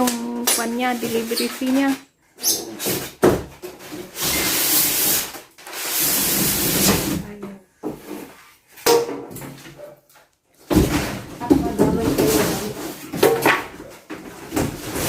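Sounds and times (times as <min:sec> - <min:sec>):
packaging rustling and scraping: 0:00.6 - 0:07.3, 0:12.0 - 0:15.0.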